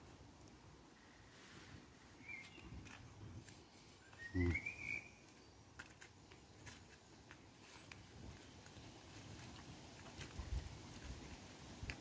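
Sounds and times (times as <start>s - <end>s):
bird whistled calls: 2.2s - 2.7s, 4.0s - 5.2s.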